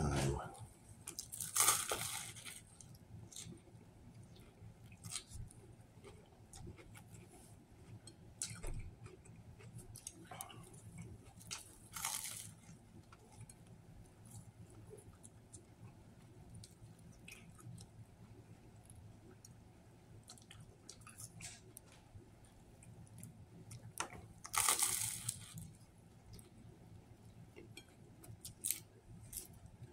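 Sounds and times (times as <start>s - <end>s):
close-up chewing with clicks: 4.2s - 11.8s, 20.2s - 22.0s.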